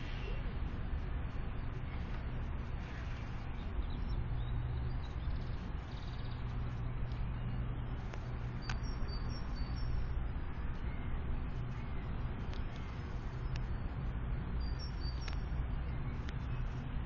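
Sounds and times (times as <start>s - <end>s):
low rumble: 0.0s - 17.0s
small bird chirping: 2.9s - 16.8s
click: 8.1s - 8.8s, 15.2s - 15.4s.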